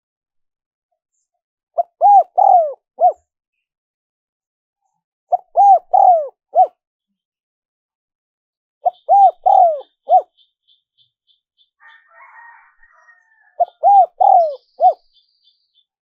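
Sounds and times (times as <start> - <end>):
dove cooing: 1.8 - 3.2, 5.3 - 6.8, 8.8 - 10.3, 11.8 - 15.1.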